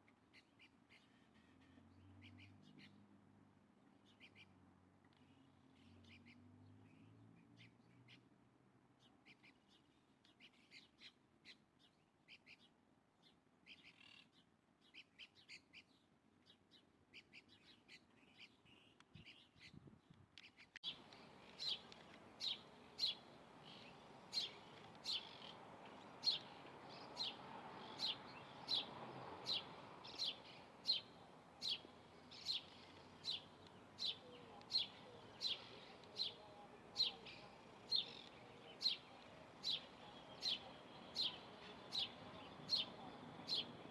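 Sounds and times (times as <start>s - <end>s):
background hiss: 20.8s - 43.9s
bird calling with high sharp notes: 20.8s - 43.9s.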